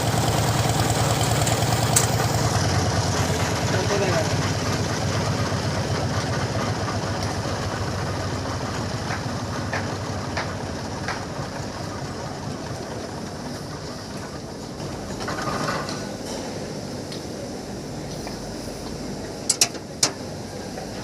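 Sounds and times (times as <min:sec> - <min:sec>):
diesel engine idling: 0:00.0 - 0:15.2.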